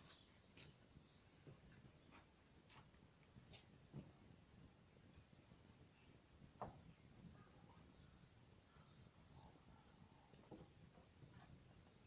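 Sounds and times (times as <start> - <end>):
faint wood fire pops: 5.8 - 7.8.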